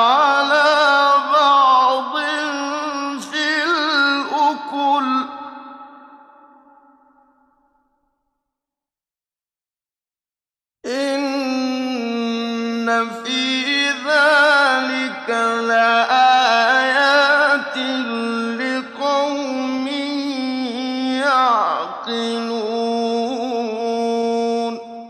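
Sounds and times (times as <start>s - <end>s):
man reciting melodically: 0.0s - 5.8s, 10.9s - 25.0s.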